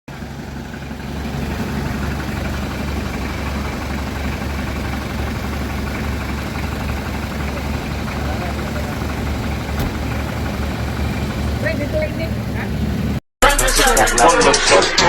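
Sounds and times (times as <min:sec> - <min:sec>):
vehicle engine running: 0:00.1 - 0:13.2.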